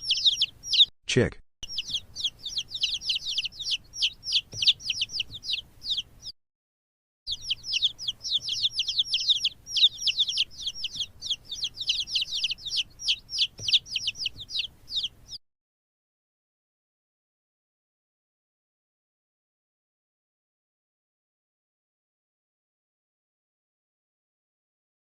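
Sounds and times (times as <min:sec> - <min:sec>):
chicks peeping: 0:00.0 - 0:00.9, 0:01.6 - 0:06.4, 0:07.3 - 0:15.4.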